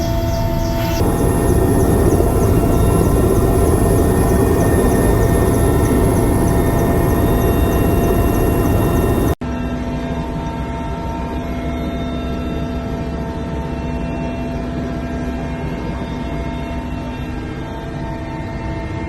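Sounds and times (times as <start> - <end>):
engine drone: 0.0 - 9.4
low rushing noise: 0.8 - 9.4.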